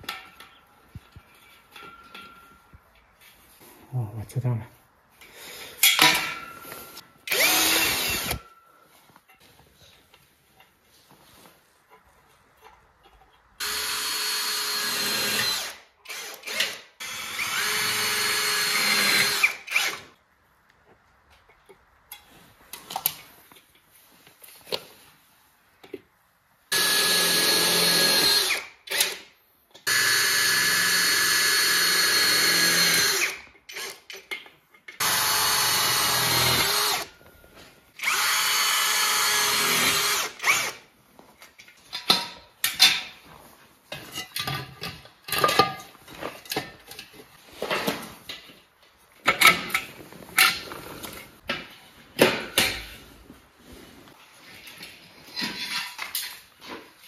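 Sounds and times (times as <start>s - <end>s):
power drill driving screws: 7.3s - 8.5s, 13.6s - 20.1s, 26.7s - 29.3s, 29.9s - 34.0s, 35.0s - 37.1s, 38.0s - 40.8s.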